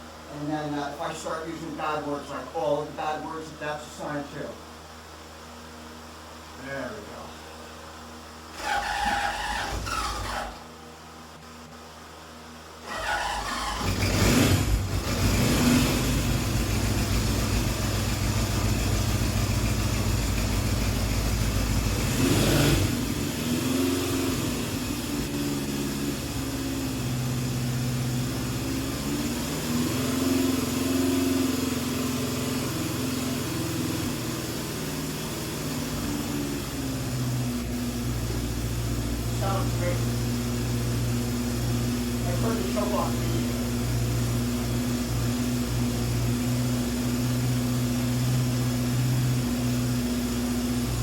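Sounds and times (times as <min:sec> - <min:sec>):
engine revving: 0:08.5 - 0:10.6, 0:12.8 - 0:51.0
motorcycle engine starting and idling: 0:08.5 - 0:10.7, 0:12.8 - 0:51.0.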